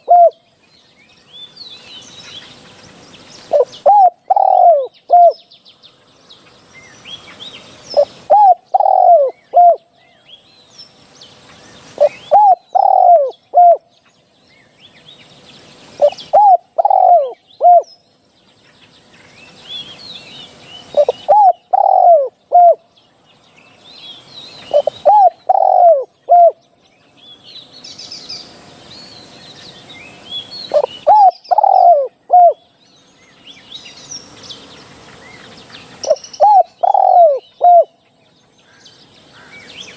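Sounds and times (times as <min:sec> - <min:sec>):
dove cooing: 0:00.0 - 0:00.4, 0:03.5 - 0:05.4, 0:08.0 - 0:09.9, 0:12.0 - 0:13.8, 0:16.0 - 0:17.9, 0:20.8 - 0:22.8, 0:24.7 - 0:26.6, 0:30.7 - 0:32.6, 0:36.0 - 0:38.0
small birds chirping: 0:00.0 - 0:39.9.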